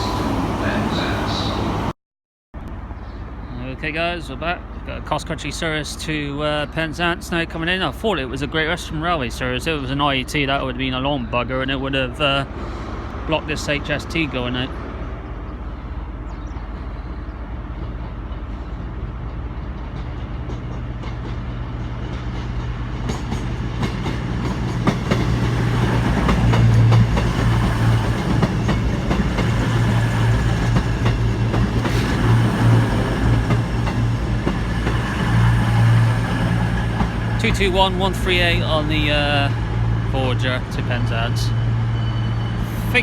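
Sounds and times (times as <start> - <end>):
train engine drone: 0.0 - 1.9, 11.8 - 43.0.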